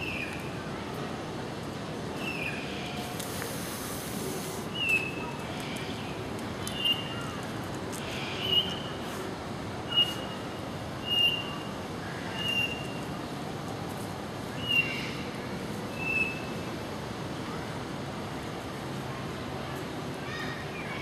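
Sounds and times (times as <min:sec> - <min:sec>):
background hiss: 0:01.6 - 0:07.2.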